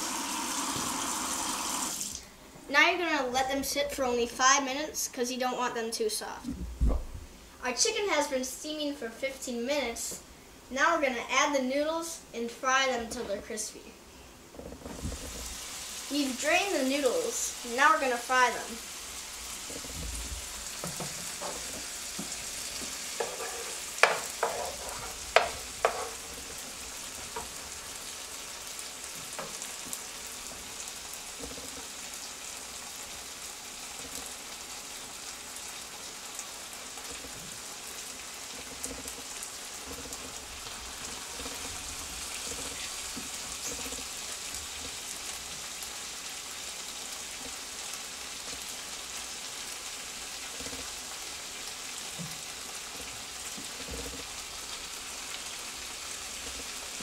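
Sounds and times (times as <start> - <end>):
noodles sizzling in oil: 0.0 - 2.3, 14.4 - 57.0.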